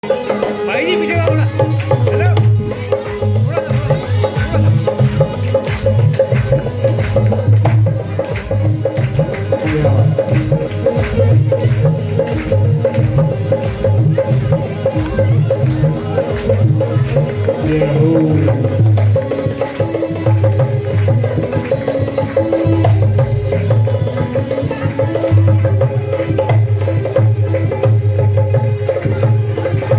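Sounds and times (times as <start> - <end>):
loud dance music: 0.6 - 12.4.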